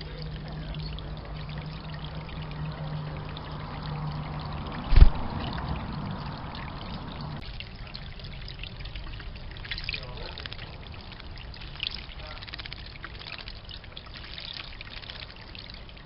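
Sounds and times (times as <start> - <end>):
low steady hum: 0.0 - 16.0
water trickling into bird bath: 0.0 - 16.0
sharp thump: 4.9 - 5.3.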